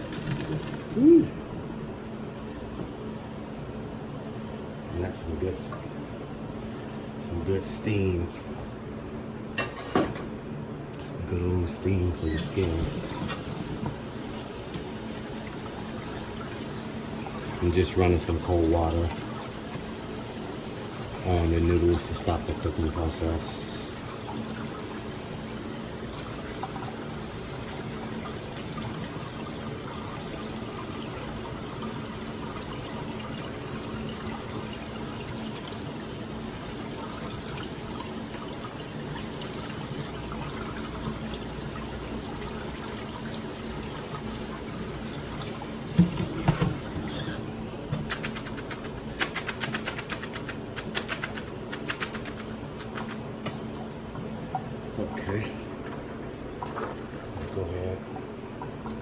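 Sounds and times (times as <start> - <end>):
faucet water running: 11.7 - 58.3
quick clatters and taps: 47.9 - 53.6.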